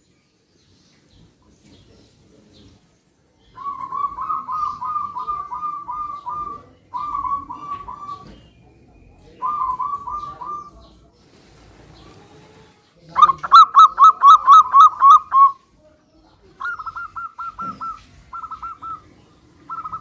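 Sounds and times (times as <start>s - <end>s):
doves cooing: 3.5s - 15.6s, 16.6s - 20.0s.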